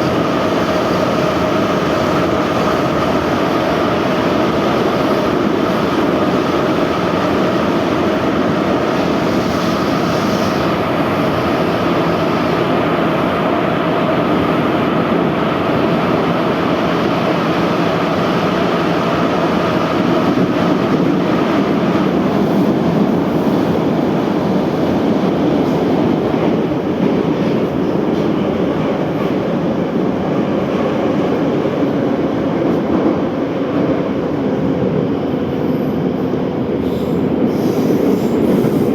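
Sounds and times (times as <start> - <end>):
subway train wheels rumbling on rail: 0.0 - 38.9.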